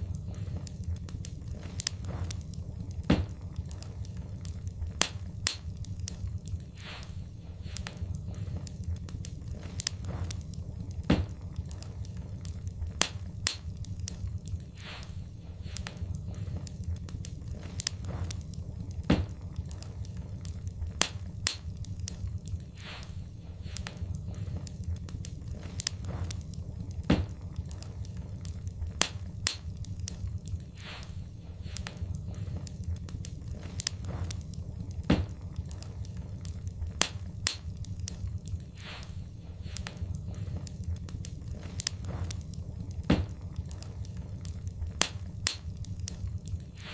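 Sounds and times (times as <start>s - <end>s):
low rumble of flames: 0.0s - 46.9s
wood fire crackling: 0.0s - 46.9s.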